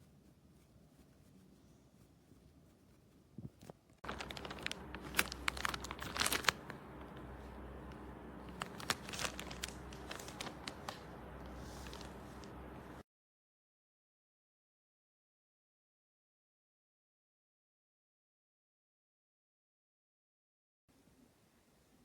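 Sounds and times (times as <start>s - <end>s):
low steady hum: 0.0s - 13.0s
crinkling handling noise: 2.6s - 13.0s.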